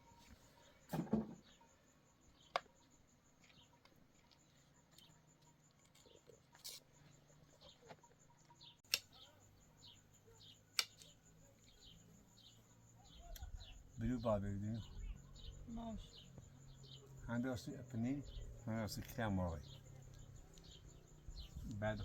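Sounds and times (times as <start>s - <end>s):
faint bird chirping: 0.0s - 22.0s
sharp clicks: 8.8s - 9.2s, 10.7s - 11.2s.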